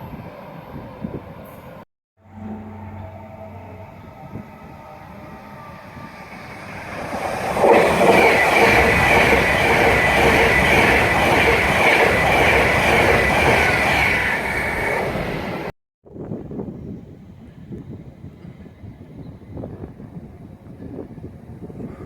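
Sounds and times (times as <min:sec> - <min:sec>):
train wheels rushing on rail: 0:04.2 - 0:15.7.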